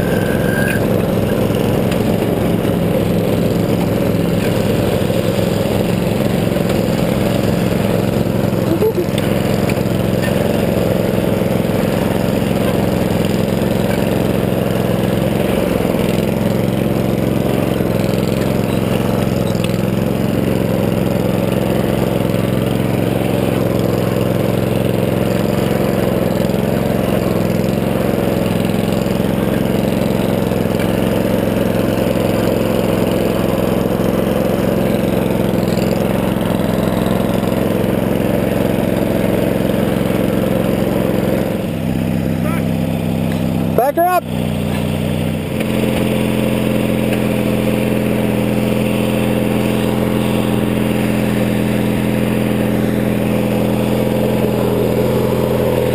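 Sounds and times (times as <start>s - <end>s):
lawn tractor engine running: 0.0s - 55.9s.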